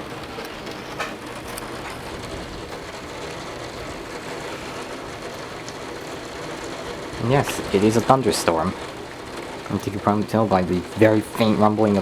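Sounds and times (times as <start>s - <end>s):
very heavy rain hissing: 0.0s - 12.0s.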